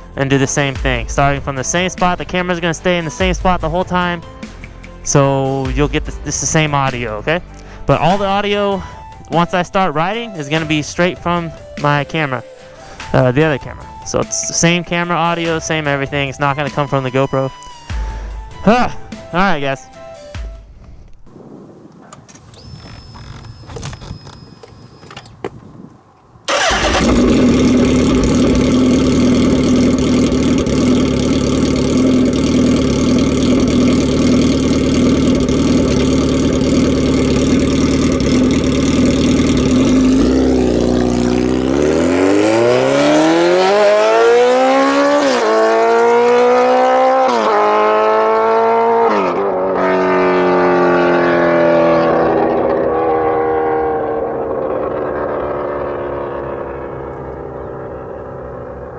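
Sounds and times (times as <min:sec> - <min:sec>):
motorcycle engine starting: 0:22.2 - 0:58.9
motorcycle engine idling: 0:26.4 - 0:41.8, 0:52.0 - 0:58.9
motorcycle revving and pulling away: 0:26.4 - 0:58.9.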